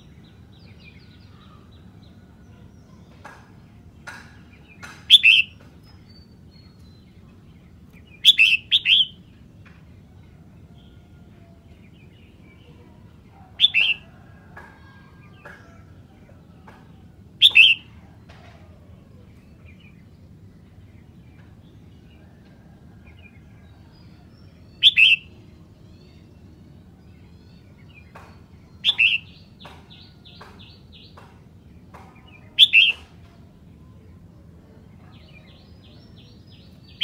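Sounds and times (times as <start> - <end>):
bulbul singing: 4.0 - 9.5, 11.7 - 15.9, 16.6 - 18.2, 24.0 - 33.3.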